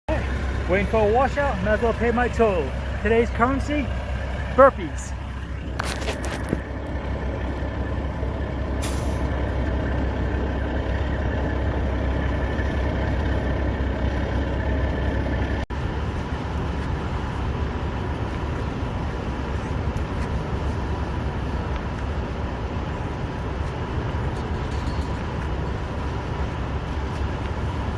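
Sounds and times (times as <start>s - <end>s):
truck engine idling: 0.1s - 27.9s
short high hiss: 8.8s - 9.2s.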